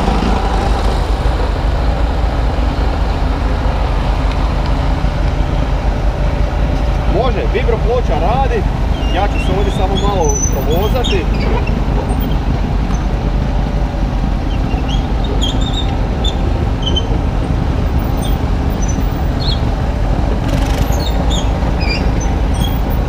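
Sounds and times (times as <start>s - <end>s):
diesel engine low rumble: 0.0s - 23.0s
short high squeaks: 8.9s - 13.1s, 14.5s - 17.2s, 20.8s - 22.8s.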